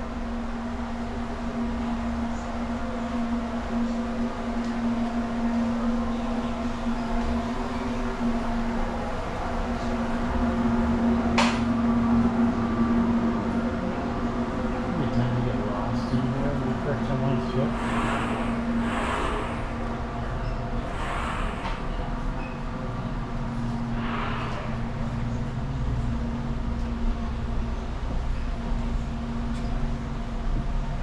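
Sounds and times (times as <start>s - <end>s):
machine hum: 0.0s - 31.0s.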